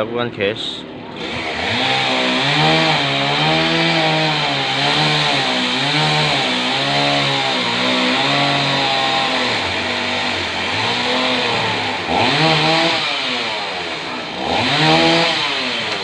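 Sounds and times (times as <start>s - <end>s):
chainsaw cutting wood: 1.1s - 16.0s.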